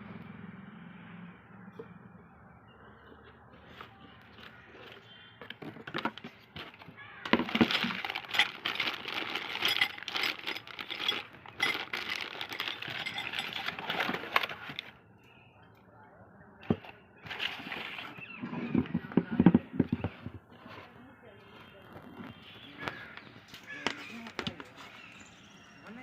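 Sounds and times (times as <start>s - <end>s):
hard objects clattering and clinking: 3.8s - 15.0s, 16.6s - 21.0s.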